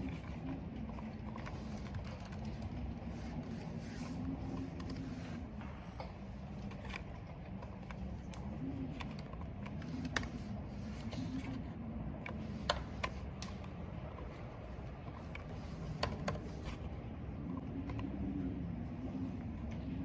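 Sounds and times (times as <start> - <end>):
low rumble of wind: 0.0 - 20.0
computer keyboard keystrokes: 0.9 - 2.8.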